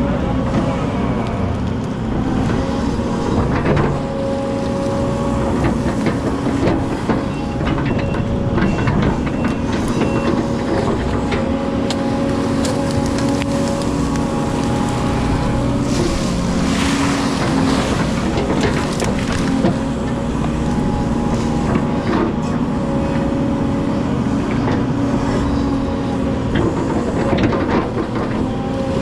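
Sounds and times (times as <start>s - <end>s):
excavator diesel engine running: 0.0s - 29.0s
hydraulic whine: 0.0s - 29.0s
debris knocks and scrapes: 10.7s - 20.0s.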